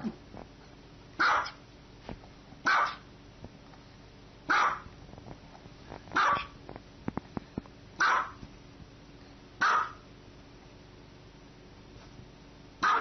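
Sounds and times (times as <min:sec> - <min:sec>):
small dog barking: 0:01.2 - 0:01.6, 0:02.6 - 0:03.1, 0:04.5 - 0:04.9, 0:06.2 - 0:06.6, 0:08.0 - 0:08.4, 0:09.6 - 0:10.1, 0:12.8 - 0:13.0.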